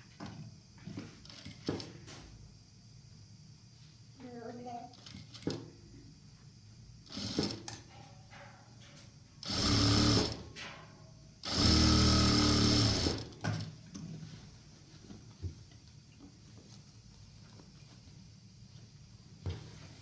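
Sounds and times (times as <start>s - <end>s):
sewing machine stitching: 7.1s - 7.7s, 9.4s - 10.4s, 11.5s - 13.3s.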